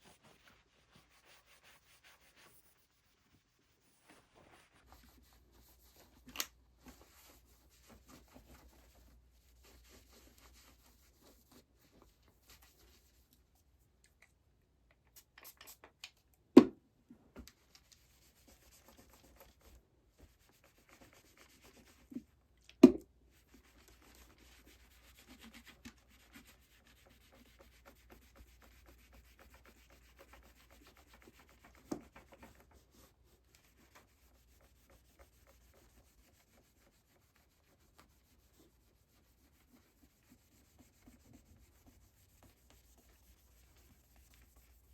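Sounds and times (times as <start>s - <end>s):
rubbing and scratching on guitar: 23.4s - 44.9s.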